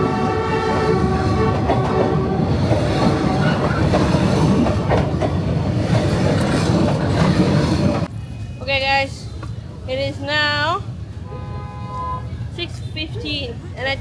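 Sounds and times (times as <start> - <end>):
wheels clacking over rail joints: 0.0 - 8.1
train rumbling past: 0.0 - 12.8.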